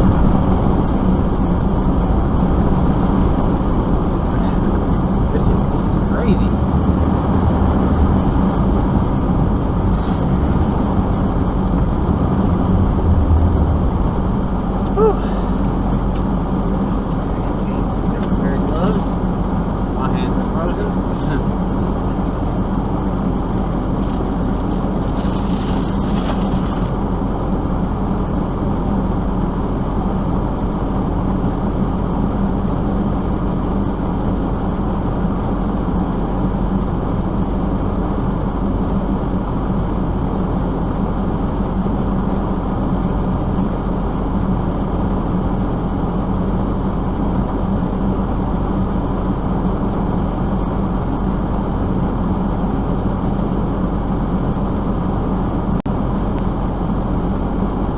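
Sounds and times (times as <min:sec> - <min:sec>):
motor vehicle engine drone: 0:00.0 - 0:57.9.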